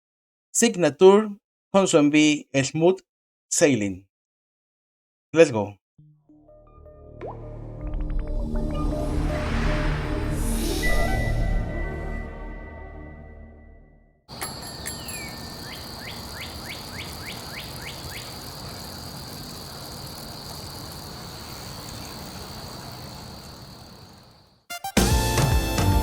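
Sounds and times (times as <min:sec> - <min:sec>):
music: 0:06.0 - 0:14.2, 0:24.7 - 0:26.0.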